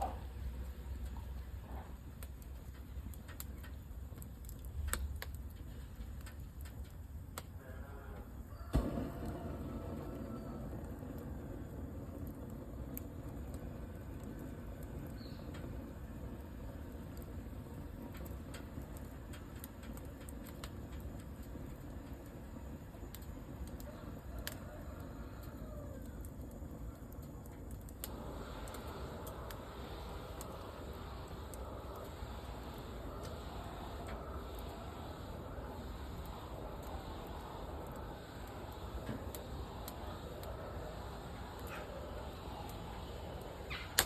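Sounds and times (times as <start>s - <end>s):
heater clicks and ticks: 0.0s - 7.8s, 8.6s - 44.0s
fireplace burning rumble: 0.0s - 44.0s
steady gas rushing: 7.6s - 44.0s
gas igniting thump: 8.7s - 9.6s.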